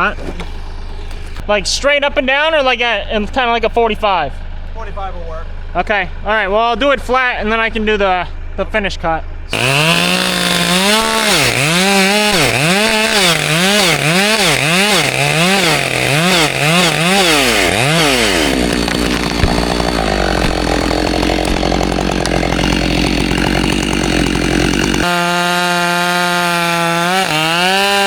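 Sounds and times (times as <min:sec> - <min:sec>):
chainsaw cutting wood: 0:09.5 - 0:28.0.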